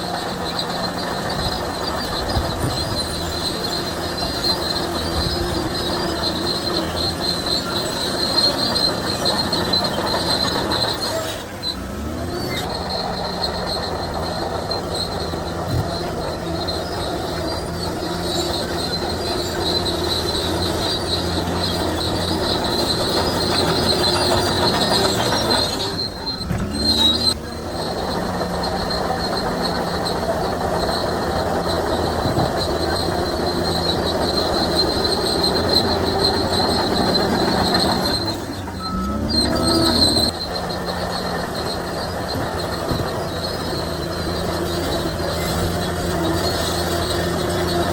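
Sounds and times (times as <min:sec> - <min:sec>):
bulldozer engine running: 0:00.0 - 0:47.9
steel tracks squealing: 0:00.0 - 0:47.9.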